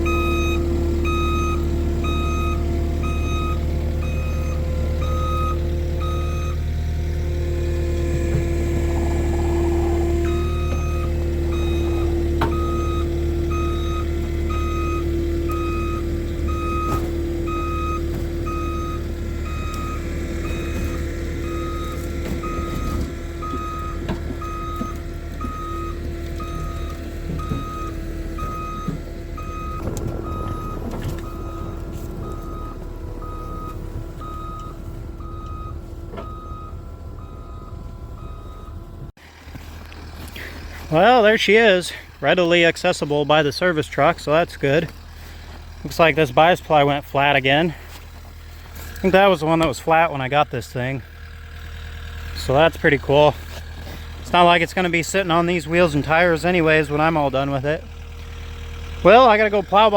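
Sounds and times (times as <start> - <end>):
reverse alarm beeping: 0.0 - 6.7, 7.7 - 39.1
skid steer engine running: 0.0 - 59.9.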